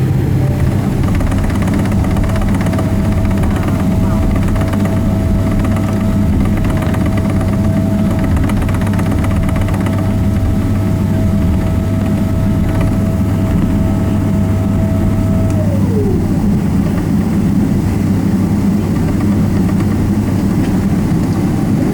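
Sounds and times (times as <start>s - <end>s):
jet engine low rumble: 0.0s - 21.9s
jet engine whine: 0.0s - 21.9s.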